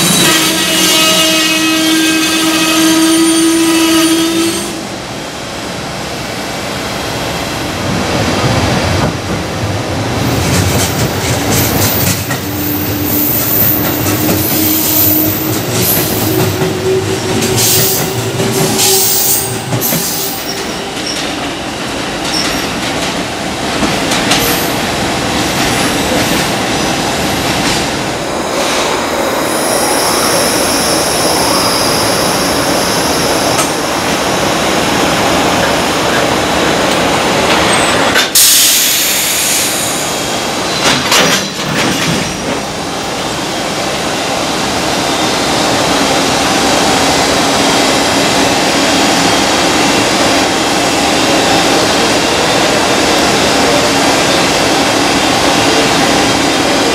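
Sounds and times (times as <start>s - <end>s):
freight train rolling on steel wheels: 7.2s - 56.9s
electric locomotive pulling out: 10.2s - 22.9s
high-pitched wheel squeal: 12.4s - 21.3s.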